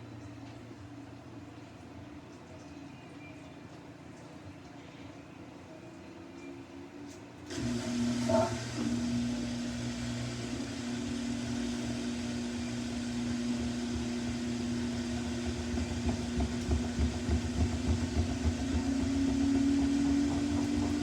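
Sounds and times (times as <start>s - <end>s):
washing machine spinning: 7.4s - 21.0s.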